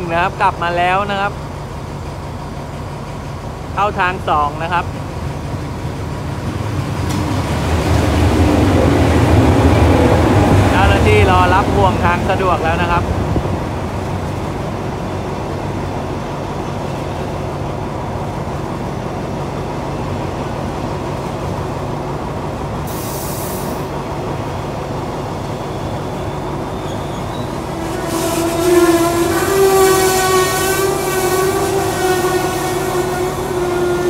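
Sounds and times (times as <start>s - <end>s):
train coaches rumbling on rails: 0.0s - 34.0s
air hiss: 22.9s - 23.9s
train brakes squealing: 25.4s - 29.1s.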